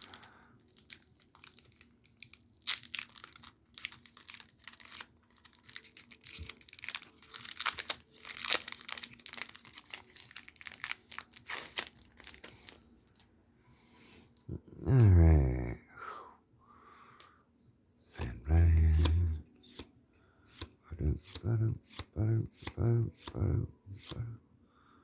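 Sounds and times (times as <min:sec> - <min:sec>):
foil wrapper crinkling and tearing: 0:00.0 - 0:13.3.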